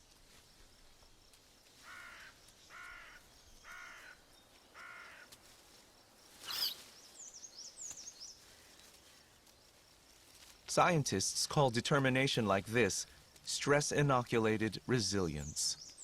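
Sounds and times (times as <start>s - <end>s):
harsh animal calls: 6.4s - 6.8s
high bird chirps: 6.4s - 8.3s.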